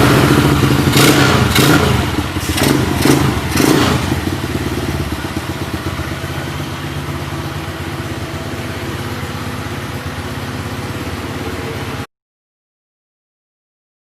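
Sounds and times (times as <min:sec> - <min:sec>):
quad bike engine idling: 0:00.0 - 0:12.1.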